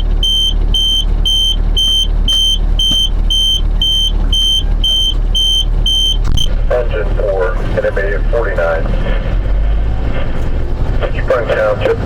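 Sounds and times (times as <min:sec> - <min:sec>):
high-pitched warning beeps: 0:00.0 - 0:06.6
fire engine engine rumble: 0:00.0 - 0:12.0.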